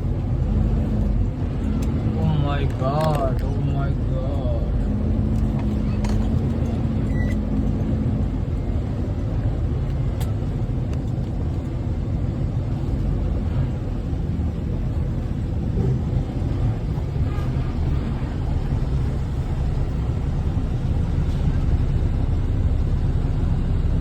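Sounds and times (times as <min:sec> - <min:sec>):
diesel truck engine running: 0:00.0 - 0:24.0
steady low hum: 0:07.8 - 0:24.0.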